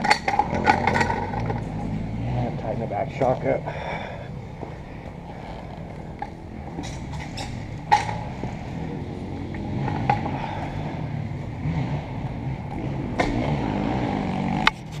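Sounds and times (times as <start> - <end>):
two-stroke dirt bike engine: 0.0 - 15.0.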